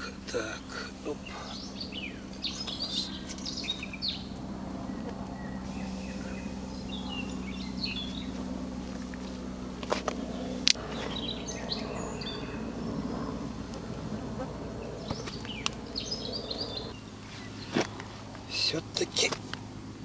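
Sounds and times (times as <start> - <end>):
small birds chirping: 0.0 - 20.0
steady low hum: 0.0 - 20.0.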